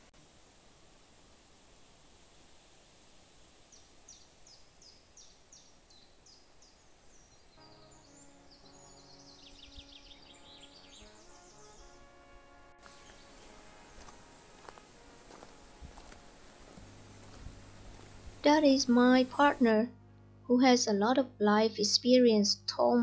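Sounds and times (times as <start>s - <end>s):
bird chirping and trilling: 4.1s - 12.1s
soft music with held notes: 7.6s - 18.4s.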